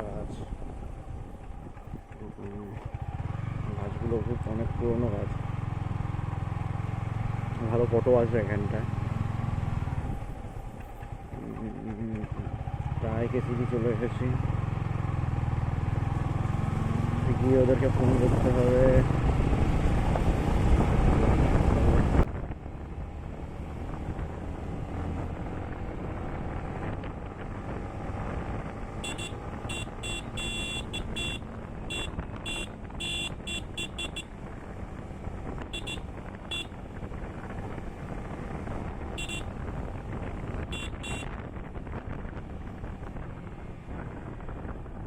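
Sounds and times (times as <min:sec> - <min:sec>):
motorcycle engine and road noise: 0:00.0 - 0:45.0
short high-pitched beeps: 0:29.0 - 0:34.3, 0:35.8 - 0:36.7, 0:39.2 - 0:39.5, 0:40.8 - 0:41.3
wind buffeting microphone: 0:34.3 - 0:45.0.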